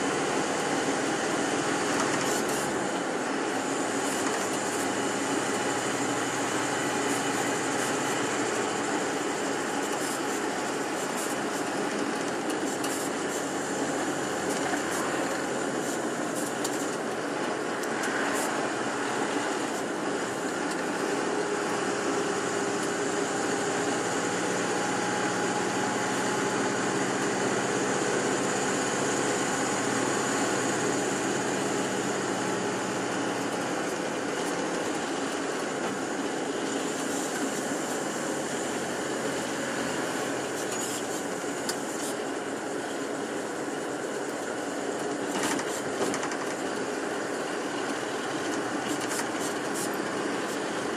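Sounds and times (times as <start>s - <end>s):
bus engine and road noise: 0.0s - 50.9s.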